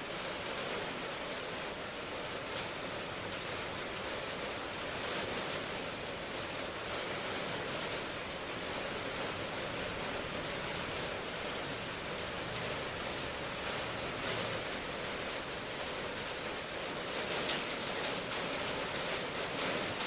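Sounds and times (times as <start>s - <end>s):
faint rain patters: 0.0s - 20.0s
rain falling: 0.0s - 20.0s.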